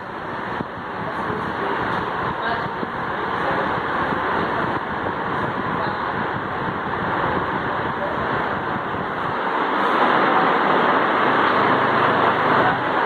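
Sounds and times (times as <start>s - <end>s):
ceiling fan rushing air: 0.0s - 13.0s.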